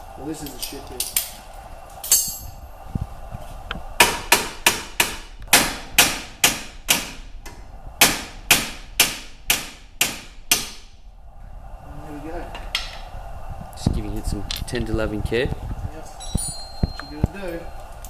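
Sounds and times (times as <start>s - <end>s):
hammer hitting metal: 4.0s - 7.2s, 8.0s - 10.9s.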